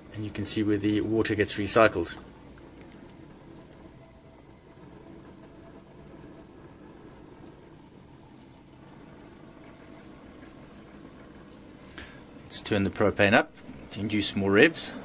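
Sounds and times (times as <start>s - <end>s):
generator low hum: 0.0s - 15.0s.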